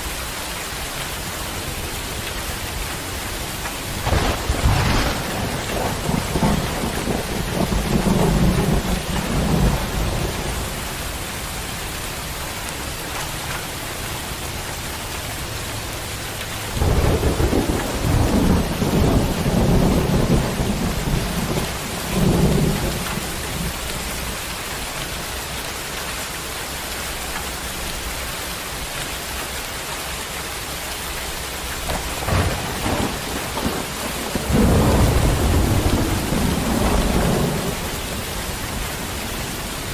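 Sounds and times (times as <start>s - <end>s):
heavy rain pouring: 0.0s - 39.9s
thunder rumbling: 3.2s - 11.6s, 16.7s - 24.4s, 31.7s - 39.9s.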